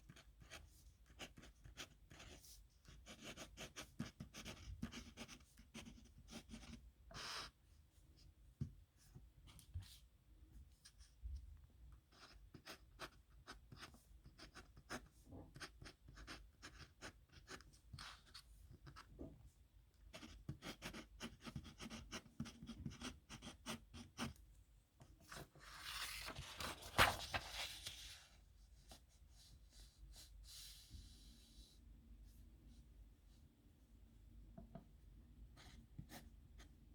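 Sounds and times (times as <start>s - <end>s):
pen scratching on paper: 3.0s - 7.4s, 12.1s - 19.0s, 20.1s - 24.4s.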